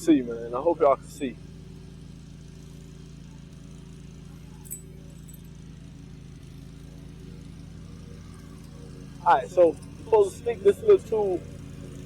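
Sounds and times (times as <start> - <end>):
lawn mower engine humming: 0.0 - 12.0
light metallic clink: 4.6 - 5.6.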